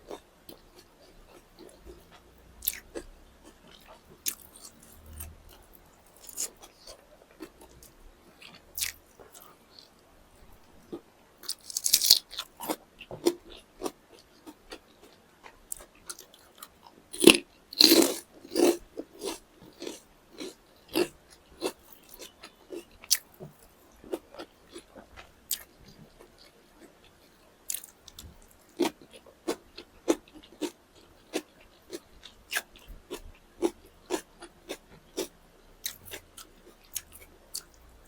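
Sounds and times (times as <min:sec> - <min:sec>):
crunchy bites: 0:11.4 - 0:14.0, 0:17.2 - 0:23.2.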